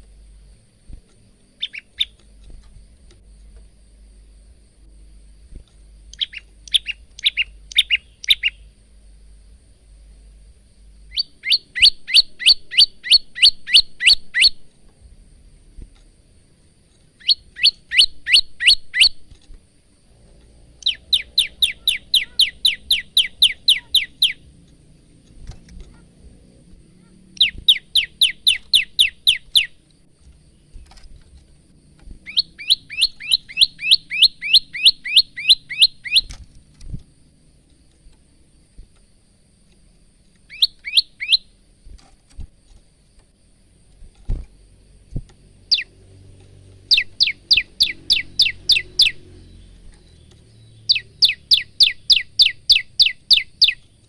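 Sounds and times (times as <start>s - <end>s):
bird singing high repeated notes: 1.5s - 2.3s, 6.0s - 8.8s, 10.9s - 14.7s, 17.1s - 19.3s, 20.7s - 26.2s, 27.0s - 29.8s, 32.2s - 36.4s, 40.4s - 41.6s, 45.6s - 46.0s, 46.6s - 54.0s.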